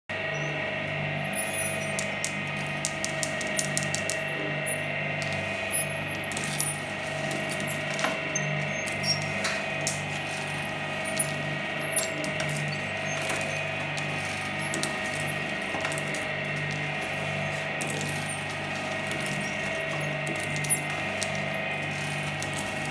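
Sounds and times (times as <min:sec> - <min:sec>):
shredder motor hum: 0:00.1 - 0:22.9
hard candy cracking in blades: 0:02.0 - 0:04.3.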